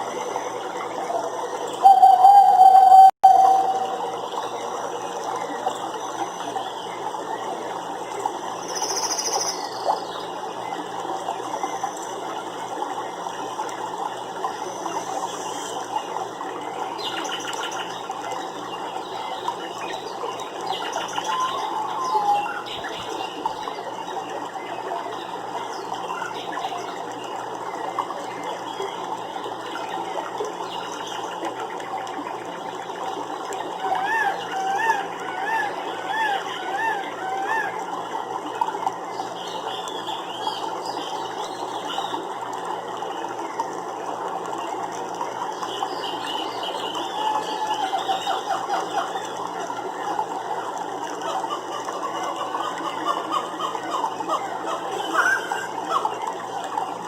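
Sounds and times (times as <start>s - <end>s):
flowing water: 0.0s - 57.0s
bird chirps: 1.8s - 4.0s.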